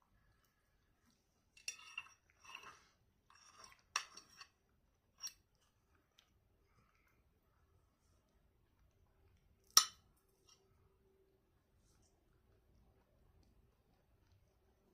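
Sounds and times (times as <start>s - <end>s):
cutlery clinking on a plate: 1.6s - 4.5s, 9.7s - 10.6s.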